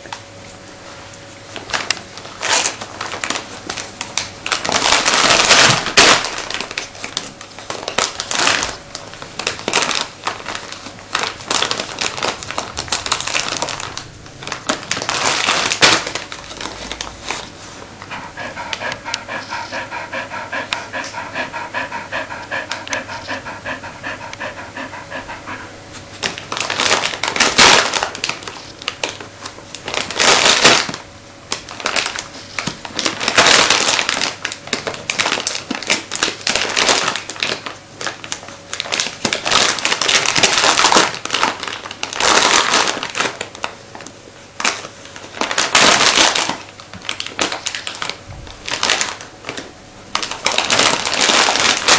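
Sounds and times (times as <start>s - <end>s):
wrapping paper ripping and rustling: 1.5s - 19.9s, 25.9s - 51.9s
dog panting hard: 18.0s - 26.3s.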